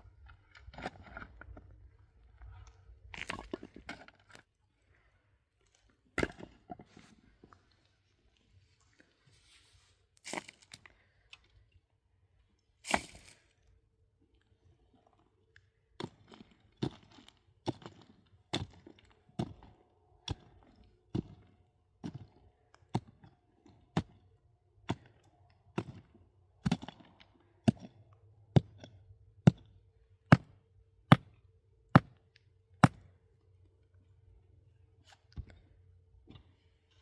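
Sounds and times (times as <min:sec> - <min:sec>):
hand tool striking hard material: 0:32.0 - 0:32.2, 0:32.8 - 0:33.0.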